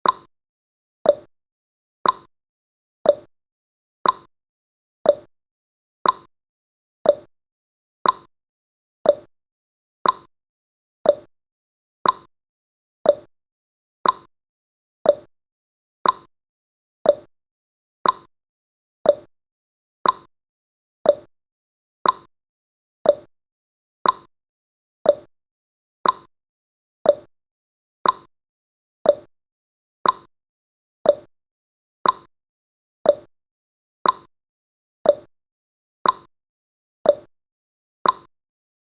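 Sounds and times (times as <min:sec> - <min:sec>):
timer ticking: 0:00.0 - 0:00.3, 0:01.0 - 0:01.3, 0:02.0 - 0:02.3, 0:03.0 - 0:03.3, 0:04.0 - 0:04.3, 0:05.1 - 0:05.3, 0:06.0 - 0:06.3, 0:07.0 - 0:07.3, 0:08.0 - 0:08.3, 0:09.0 - 0:09.3, 0:10.0 - 0:10.3, 0:11.0 - 0:11.3, 0:12.0 - 0:12.3, 0:13.0 - 0:13.3, 0:14.0 - 0:14.3, 0:15.0 - 0:15.3, 0:16.0 - 0:16.3, 0:17.0 - 0:17.3, 0:18.0 - 0:18.3, 0:19.0 - 0:19.3, 0:20.0 - 0:20.3, 0:21.0 - 0:21.3, 0:22.0 - 0:22.3, 0:23.0 - 0:23.3, 0:24.0 - 0:24.3, 0:25.0 - 0:25.3, 0:26.0 - 0:26.3, 0:27.0 - 0:27.3, 0:28.0 - 0:28.3, 0:29.0 - 0:29.3, 0:30.0 - 0:30.3, 0:31.0 - 0:31.3, 0:32.0 - 0:32.3, 0:33.0 - 0:33.3, 0:34.0 - 0:34.3, 0:35.0 - 0:35.3, 0:36.0 - 0:36.3, 0:37.1 - 0:37.3, 0:38.0 - 0:38.3.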